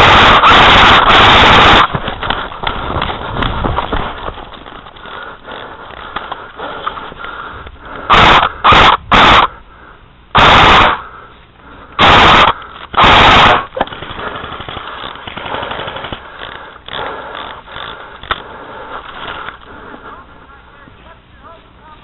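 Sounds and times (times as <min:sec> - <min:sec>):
airsoft rifle full-auto bursts: 0:00.0 - 0:03.5, 0:08.1 - 0:09.5, 0:10.4 - 0:11.1, 0:12.0 - 0:18.4.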